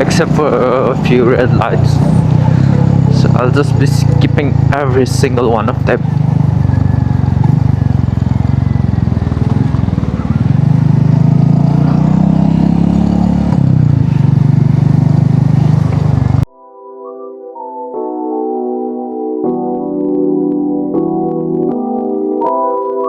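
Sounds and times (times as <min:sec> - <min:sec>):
motorcycle engine accelerating: 0:00.0 - 0:16.5
soft piano music: 0:16.5 - 0:23.0.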